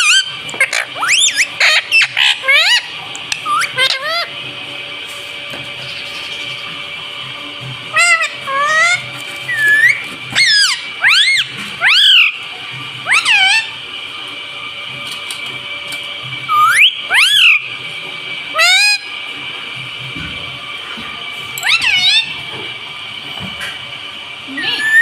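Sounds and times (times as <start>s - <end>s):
parrot high calls: 0.0s - 4.3s, 7.9s - 12.4s, 13.0s - 13.8s, 16.5s - 17.7s, 18.5s - 19.1s, 21.6s - 22.4s, 24.6s - 25.0s.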